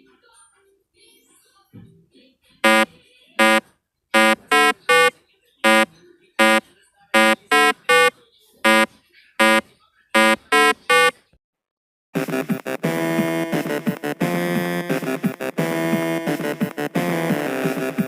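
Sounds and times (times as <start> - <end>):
buzzy horn beeps: 2.6 - 3.6, 4.2 - 6.6, 7.2 - 8.1, 8.7 - 9.6, 10.2 - 11.1.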